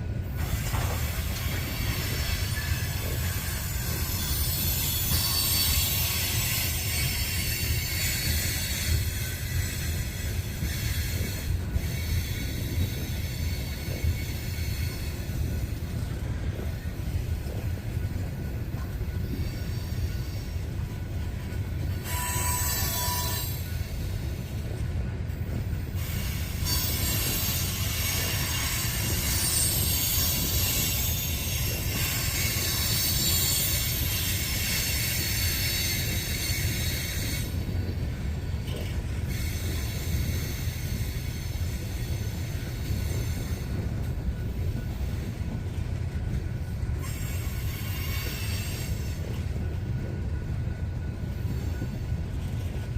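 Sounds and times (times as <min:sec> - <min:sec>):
train wheels rumbling on rail: 0:00.0 - 0:52.9
high-pitched wheel squeal: 0:22.0 - 0:24.0.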